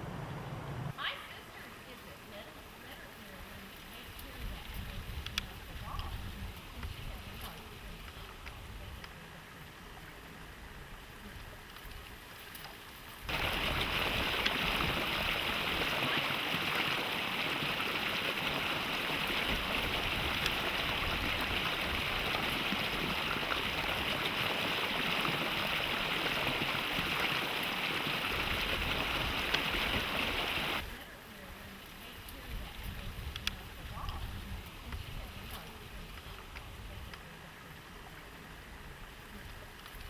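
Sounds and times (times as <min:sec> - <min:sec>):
mountain stream rushing: 0:13.3 - 0:31.0.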